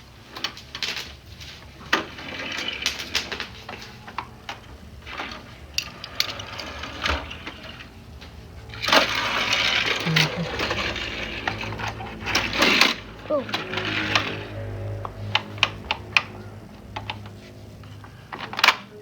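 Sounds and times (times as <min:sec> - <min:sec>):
toys rattling and rubbing: 0:00.0 - 0:19.0.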